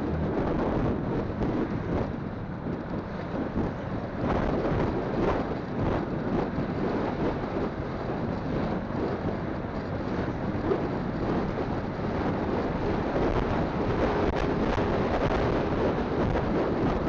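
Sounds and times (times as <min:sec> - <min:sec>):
wind on phone microphone: 0:00.0 - 0:17.0.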